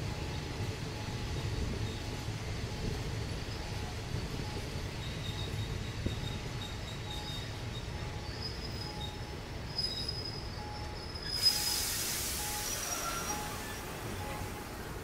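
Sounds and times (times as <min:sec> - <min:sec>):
train wheels rumbling on rails: 0:00.0 - 0:15.0
loud hiss: 0:11.3 - 0:14.1
wheels squealing: 0:12.5 - 0:14.5.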